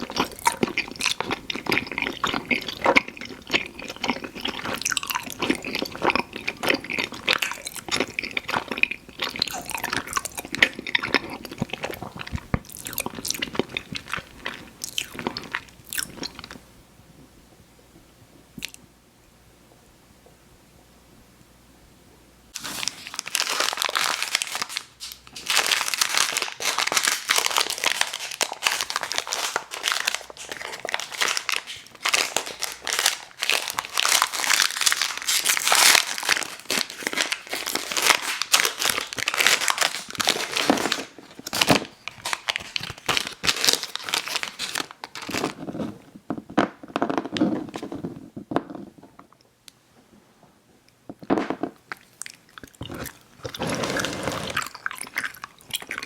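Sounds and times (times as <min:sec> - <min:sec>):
candy packaging crinkling: 0:00.0 - 0:16.6, 0:22.6 - 0:49.0.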